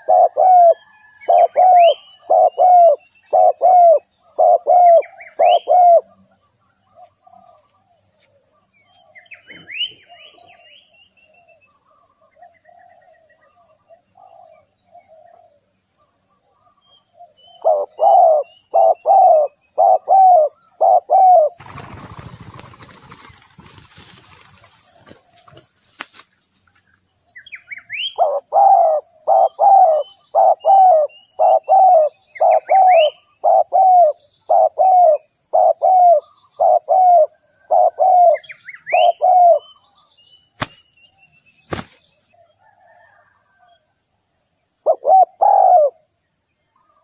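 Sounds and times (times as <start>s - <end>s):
dove cooing: 0.0s - 6.2s, 17.6s - 23.2s, 28.0s - 39.7s, 44.8s - 46.0s
small birds chirping: 0.0s - 43.8s
rustling noise: 21.6s - 26.9s, 41.7s - 42.1s.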